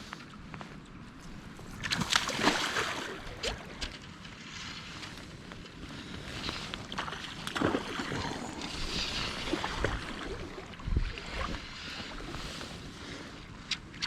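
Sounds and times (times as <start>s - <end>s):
running stream: 0.0s - 14.0s
wind buffeting microphone: 4.9s - 13.6s.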